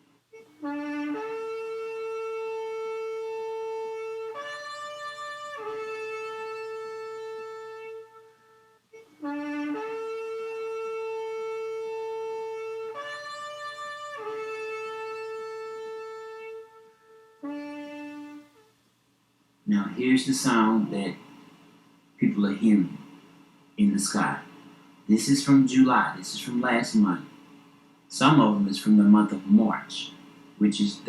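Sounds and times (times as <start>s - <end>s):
ram's horn blowing: 0.0s - 18.8s.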